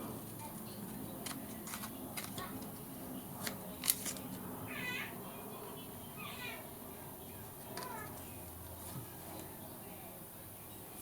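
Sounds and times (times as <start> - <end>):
scissors snipping paper: 0.9 - 2.8, 3.4 - 4.4.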